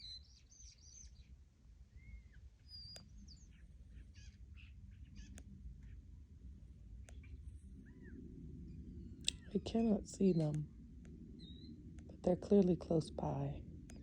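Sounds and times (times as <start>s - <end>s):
songbirds chirping and whistling: 0.0s - 6.2s, 6.8s - 14.0s
sharp clicks: 9.2s - 9.5s.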